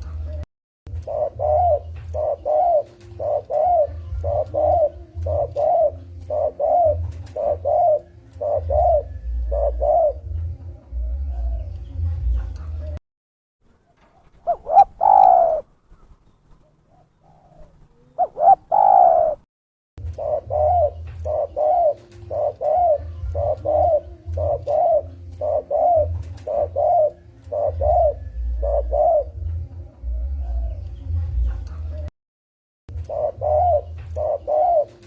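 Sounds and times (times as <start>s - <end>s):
dove cooing: 0.0s - 13.0s, 14.0s - 31.8s, 32.9s - 35.0s.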